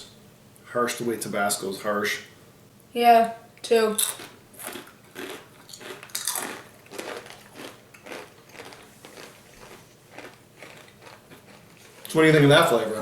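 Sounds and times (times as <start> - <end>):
chips being chewed: 4.0 - 12.2.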